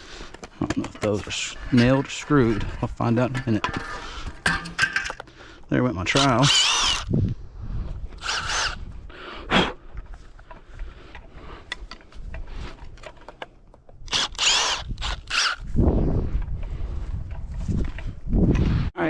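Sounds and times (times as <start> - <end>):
impact driver running: 6.1 - 7.1, 8.2 - 8.9, 14.1 - 15.7.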